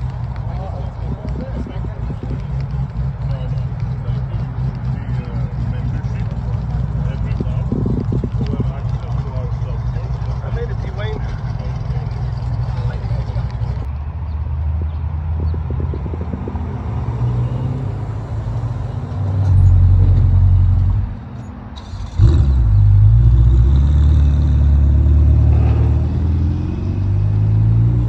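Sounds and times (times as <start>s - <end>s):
car engine revving: 0.0s - 13.9s, 21.8s - 28.0s.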